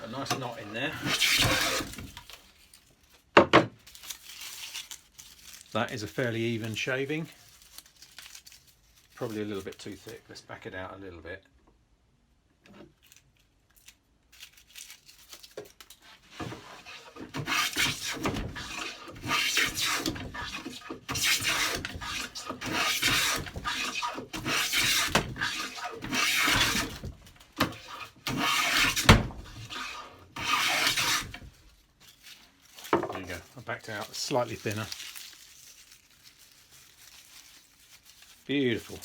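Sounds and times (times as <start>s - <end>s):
hand plane shaving wood: 0.0s - 2.2s, 16.3s - 31.5s
faint handling sounds: 1.8s - 11.0s, 31.2s - 39.0s.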